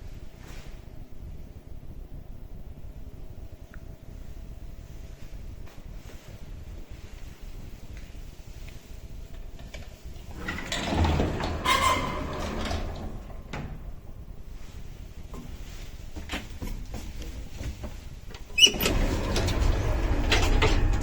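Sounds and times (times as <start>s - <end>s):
lift doors rattling and sliding: 10.2s - 14.4s, 16.2s - 21.0s.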